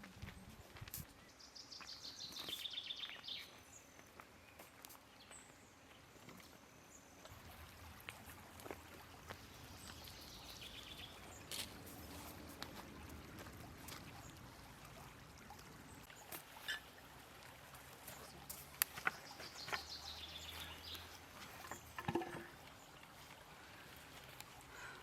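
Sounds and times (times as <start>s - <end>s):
faint outdoor ambience: 0.0s - 25.0s.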